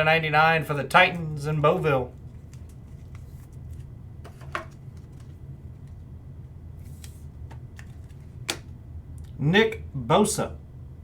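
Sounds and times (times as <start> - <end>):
steady low hum: 0.0 - 11.0
cards clicking and knocking: 4.2 - 5.4, 6.9 - 8.7.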